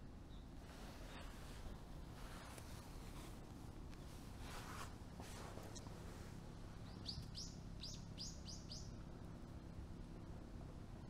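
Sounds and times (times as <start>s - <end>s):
bird chirping: 0.2s - 1.2s, 5.6s - 6.0s, 6.7s - 9.1s
soft rustles: 0.6s - 6.8s.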